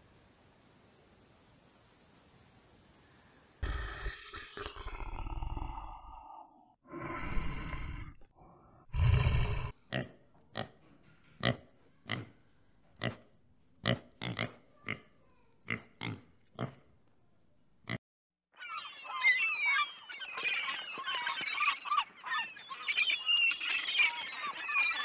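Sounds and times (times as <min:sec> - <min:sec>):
bear growling: 0:03.6 - 0:09.8
pig grunting: 0:03.6 - 0:10.8, 0:13.0 - 0:16.9.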